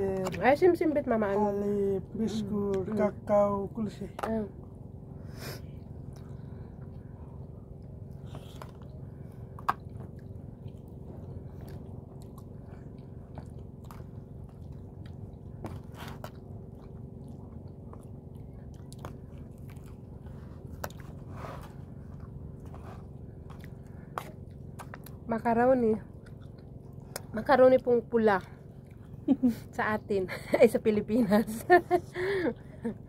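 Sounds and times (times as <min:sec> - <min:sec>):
low room hum: 0:00.0 - 0:33.0
person chewing: 0:07.7 - 0:25.3, 0:26.1 - 0:27.3.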